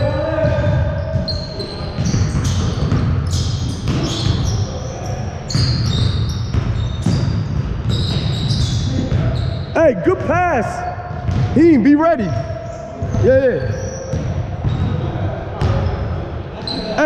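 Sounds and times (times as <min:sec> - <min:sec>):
sneakers squeaking: 0:00.0 - 0:17.0
basketball dribbling on court: 0:00.4 - 0:04.6, 0:05.5 - 0:09.5, 0:11.1 - 0:15.0
players' voices: 0:08.6 - 0:17.0.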